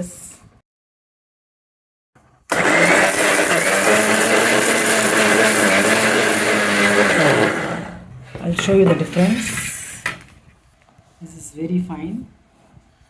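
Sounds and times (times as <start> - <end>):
mixer grinder running: 2.5 - 8.1.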